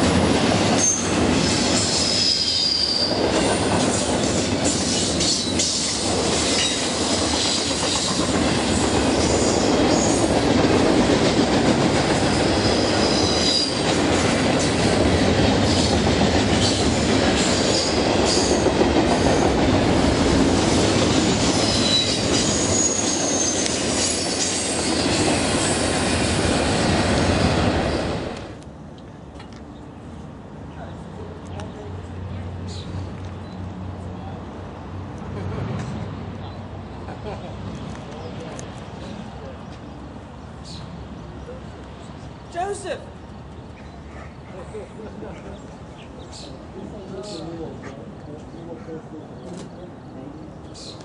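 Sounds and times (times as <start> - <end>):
train wheels rumbling on rails: 0.0 - 29.6
train wheels squealing: 0.7 - 4.1, 4.7 - 8.3, 9.3 - 10.3, 12.3 - 14.0, 16.6 - 18.6, 21.4 - 25.9.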